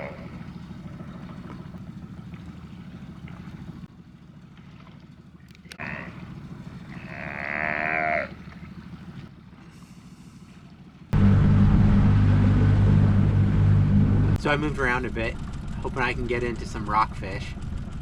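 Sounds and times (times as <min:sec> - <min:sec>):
sea lions bellowing: 0:00.0 - 0:03.9, 0:05.6 - 0:11.0
low hum: 0:04.6 - 0:18.0.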